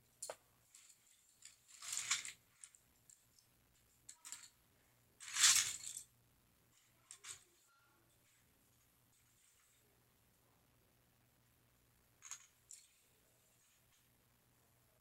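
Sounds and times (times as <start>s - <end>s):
plastic toy bricks rattling: 1.4s - 2.8s, 5.2s - 6.1s, 12.2s - 12.9s.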